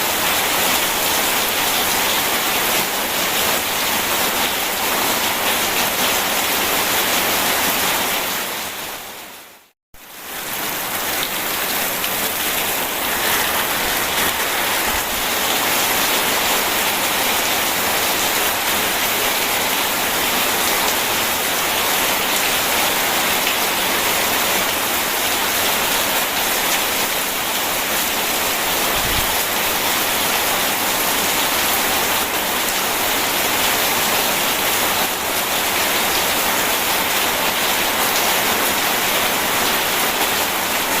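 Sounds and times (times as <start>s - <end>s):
steady rain: 0.0s - 41.0s
river water rushing: 10.4s - 20.4s.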